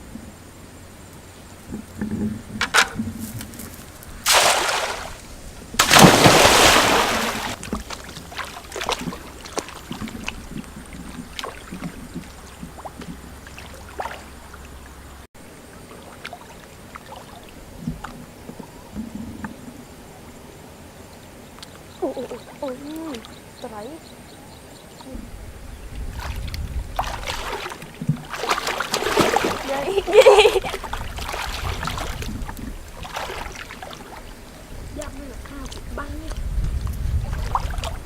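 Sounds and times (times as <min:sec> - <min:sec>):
water sloshing and dripping: 0:01.6 - 0:19.6, 0:21.6 - 0:23.9, 0:25.9 - 0:38.0
loud water splashes: 0:04.2 - 0:15.0, 0:26.1 - 0:36.5, 0:37.1 - 0:38.0.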